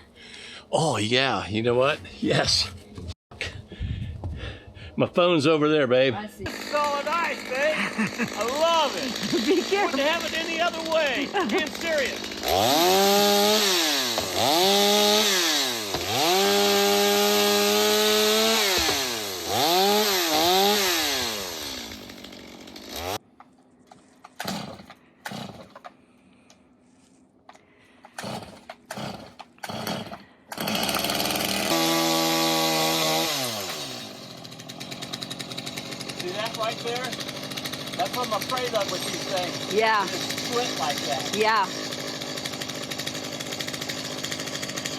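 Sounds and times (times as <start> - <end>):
chainsaw engine revving: 6.5 - 23.2, 24.4 - 25.9, 28.1 - 44.9.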